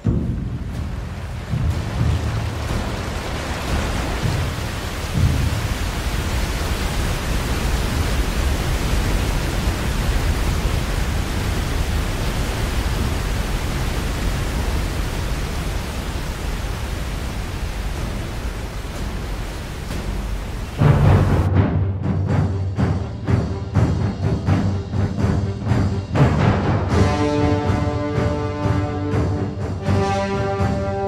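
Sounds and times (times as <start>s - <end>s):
waterfall rushing with low rumble: 0.0s - 21.5s.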